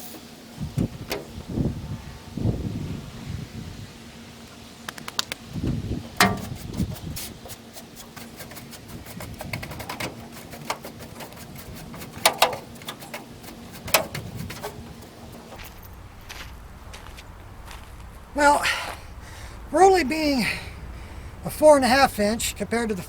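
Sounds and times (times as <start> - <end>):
faint low hum: 13.9 - 23.0.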